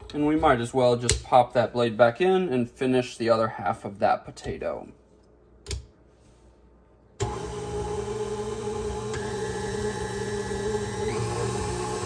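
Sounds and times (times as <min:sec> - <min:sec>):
stand mixer motor running: 0:07.2 - 0:12.0.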